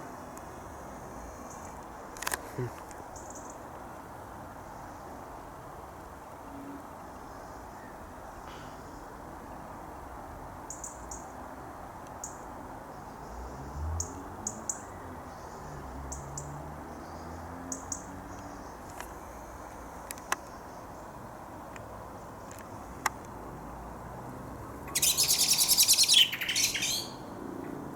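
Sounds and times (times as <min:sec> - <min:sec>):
small birds chirping: 0:24.9 - 0:27.4.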